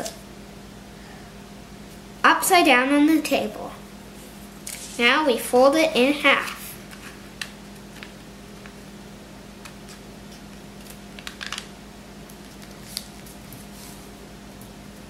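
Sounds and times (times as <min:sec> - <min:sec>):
steady low hum: 0:00.0 - 0:15.0
paper crackles and taps: 0:10.8 - 0:11.7.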